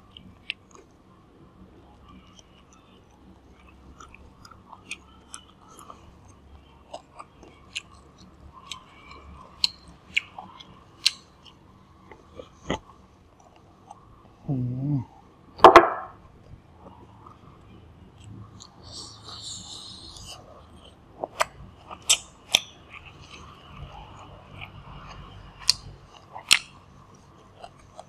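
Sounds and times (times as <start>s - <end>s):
close chewing with crackles: 0.0s - 15.5s, 16.2s - 28.0s
low voice-like hum: 14.0s - 21.8s.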